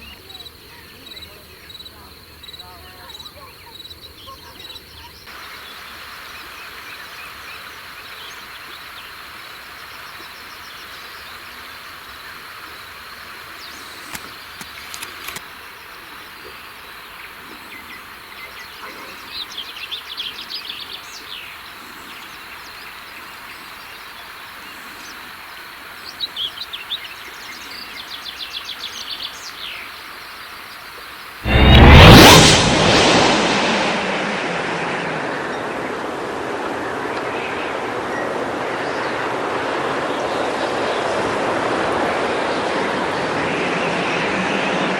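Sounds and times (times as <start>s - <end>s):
steady outdoor hiss: 0.0s - 31.9s, 34.4s - 44.9s
faint clicks: 14.0s - 15.5s.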